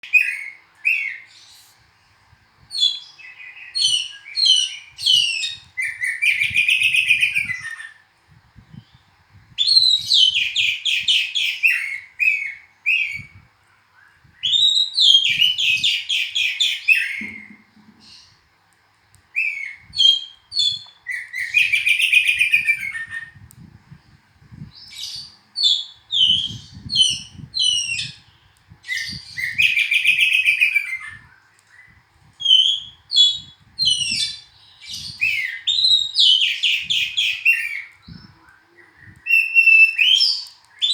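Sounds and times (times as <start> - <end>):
bird chirps and whistles: 0.0 - 1.6, 2.7 - 8.0, 9.6 - 13.4, 14.0 - 18.3, 19.4 - 23.4, 24.8 - 31.4, 32.4 - 40.9
bird singing trilled phrases: 8.7 - 13.4, 19.4 - 23.4, 24.6 - 40.9.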